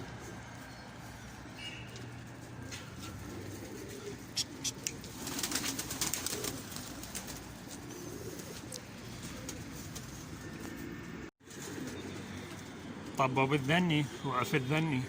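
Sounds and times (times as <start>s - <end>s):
pigeons cooing: 0.0s - 1.2s, 1.9s - 15.0s
wings clapping and flapping: 4.6s - 10.8s.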